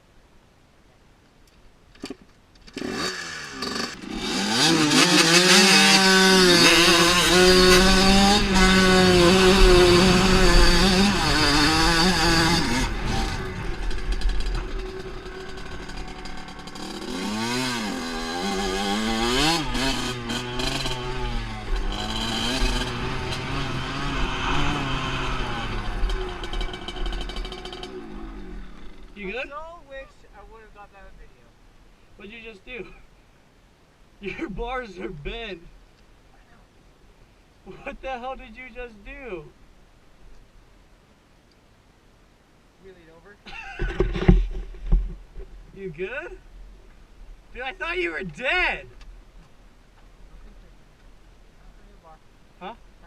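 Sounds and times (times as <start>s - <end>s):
dirt bike engine revving: 2.6s - 29.6s.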